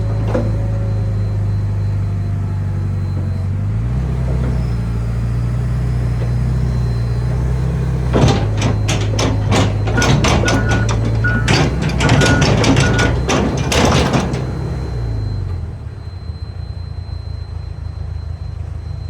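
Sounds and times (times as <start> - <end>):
excavator diesel engine drone: 0.0 - 19.0
sharp knocks: 8.2 - 14.6.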